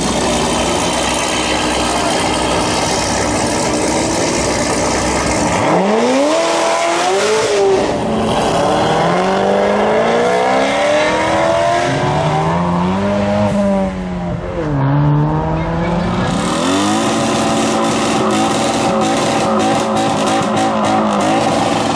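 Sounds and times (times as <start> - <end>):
car engine revving: 0.0 - 21.9.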